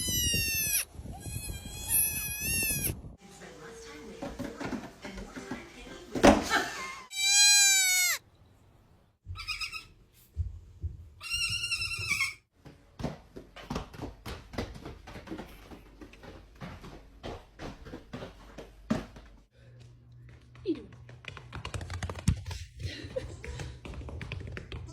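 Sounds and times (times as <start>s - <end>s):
baby goats bleating: 7.1s - 8.2s.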